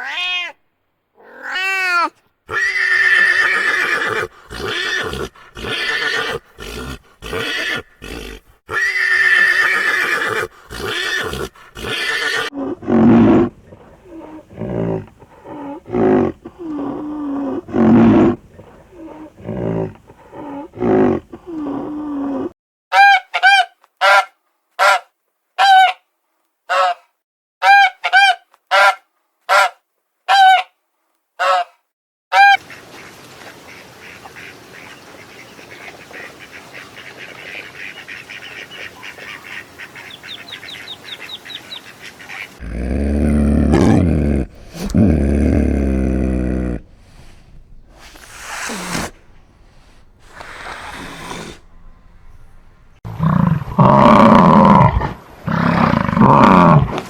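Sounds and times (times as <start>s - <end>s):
goose honking: 47.0s - 53.0s.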